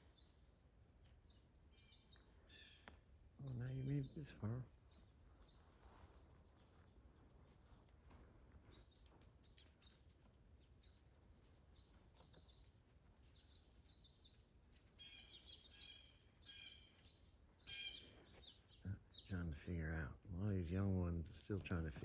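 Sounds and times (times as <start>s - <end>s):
birds chirping: 0.0s - 22.0s
harsh bird calls: 1.3s - 7.0s, 11.7s - 21.9s.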